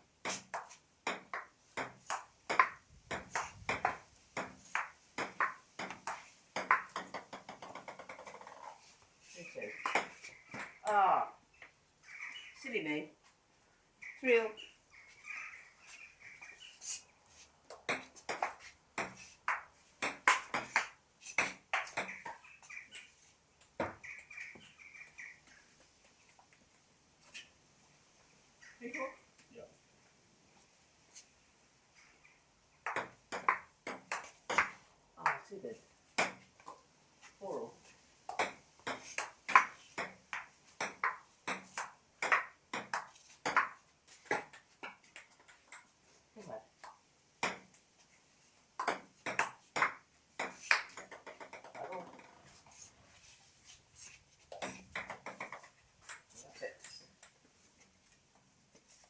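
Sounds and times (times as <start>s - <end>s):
table tennis ball hits: 0.3s - 8.6s, 9.8s - 10.8s, 17.7s - 22.4s, 32.8s - 35.4s, 36.2s - 36.4s, 38.3s - 45.9s, 47.4s - 47.7s, 48.8s - 52.4s, 54.5s - 57.4s.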